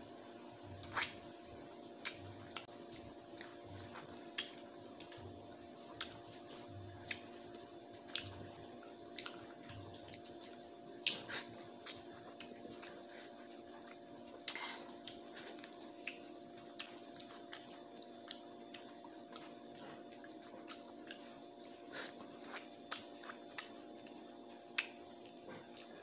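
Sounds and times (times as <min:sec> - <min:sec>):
steady low hum: 0:00.0 - 0:26.0
wet mouth eating sounds: 0:00.8 - 0:01.2, 0:05.9 - 0:26.0.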